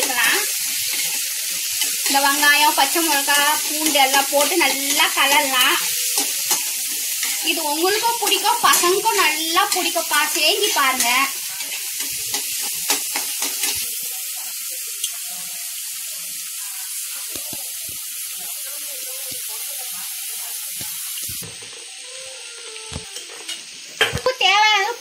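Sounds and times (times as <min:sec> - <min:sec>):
onions sizzling in oil: 0:00.0 - 0:25.0
spatula scraping a pan: 0:00.6 - 0:13.8.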